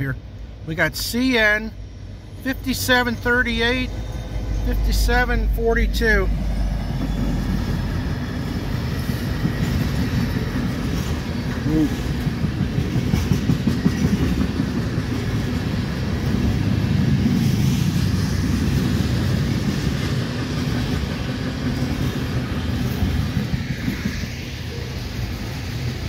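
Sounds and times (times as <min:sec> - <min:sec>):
train wheels rumbling on rail: 0:00.0 - 0:26.0
wheels clicking over rail joints: 0:07.0 - 0:17.3.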